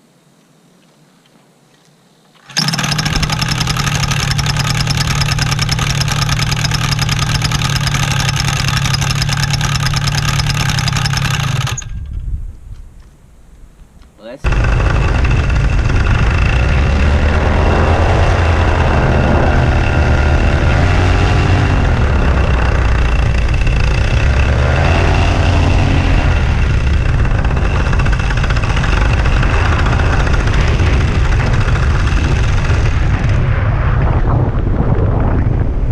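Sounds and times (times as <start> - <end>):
two-stroke engine idling: 2.4 - 12.2, 14.4 - 33.4.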